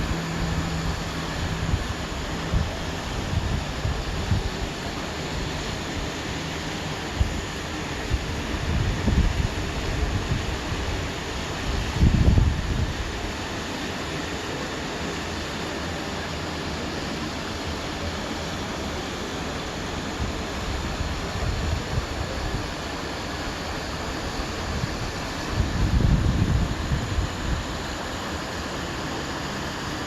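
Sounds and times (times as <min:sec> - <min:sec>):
strong wind blowing: 0:00.0 - 0:04.8, 0:08.1 - 0:11.0, 0:11.7 - 0:13.2, 0:24.4 - 0:28.0
wind buffeting microphone: 0:08.1 - 0:10.9, 0:11.7 - 0:13.2, 0:24.6 - 0:27.9.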